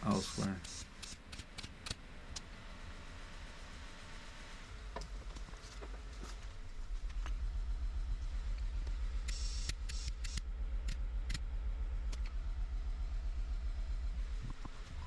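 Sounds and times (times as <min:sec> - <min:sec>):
car engine idling: 0:06.5 - 0:15.0.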